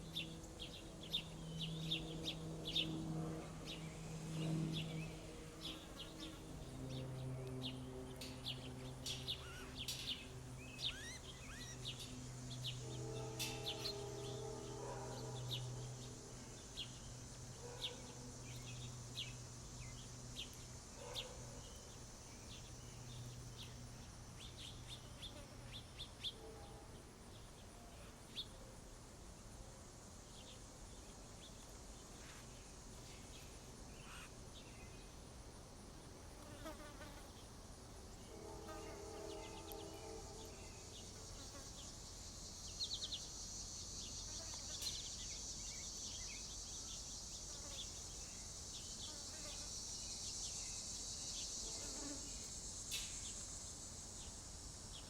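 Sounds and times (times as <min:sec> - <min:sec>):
low hum: 0:00.0 - 0:17.2
insects buzzing: 0:00.0 - 0:55.0
small birds chirping: 0:03.6 - 0:28.6.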